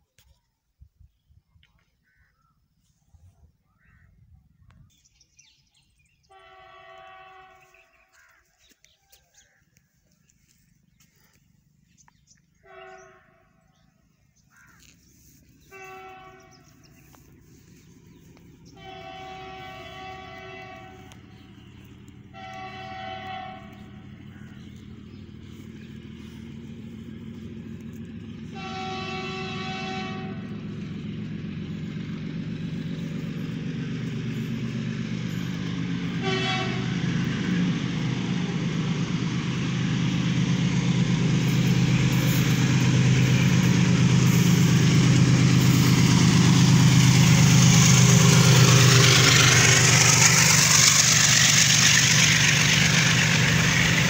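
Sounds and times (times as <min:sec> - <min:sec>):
train rumble and wheel noise: 0:03.3 - 0:54.0
locomotive horn blasts: 0:06.3 - 0:08.2, 0:12.6 - 0:13.8, 0:15.6 - 0:25.8, 0:26.8 - 0:31.8, 0:35.2 - 0:38.8, 0:41.4 - 0:54.0.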